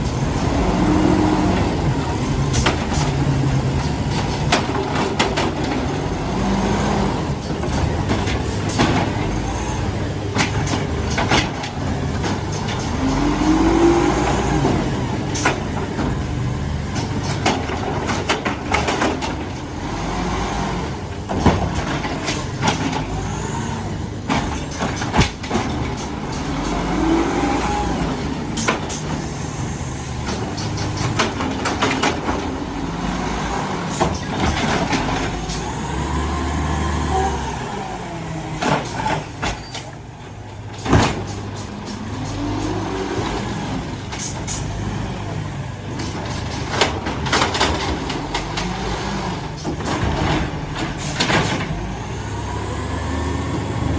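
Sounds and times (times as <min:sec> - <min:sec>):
garbage truck engine revving: 0:00.0 - 0:53.9
metallic clanks and knocks: 0:30.2 - 0:32.7.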